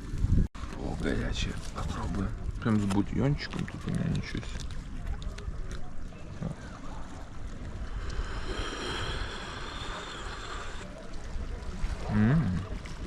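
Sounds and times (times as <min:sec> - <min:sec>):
wind on microphone: 0:00.0 - 0:13.0
sea surf: 0:06.6 - 0:13.0
hiss: 0:07.8 - 0:11.0.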